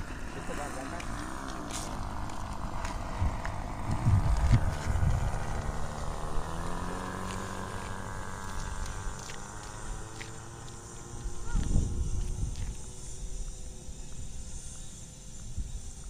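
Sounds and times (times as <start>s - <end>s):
model airplane engine buzzing: 0.0s - 16.0s
wind buffeting microphone: 0.0s - 16.0s.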